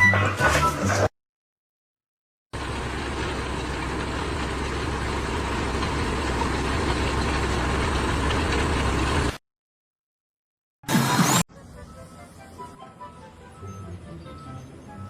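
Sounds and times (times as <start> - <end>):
engine humming: 2.6 - 9.4, 11.5 - 15.0.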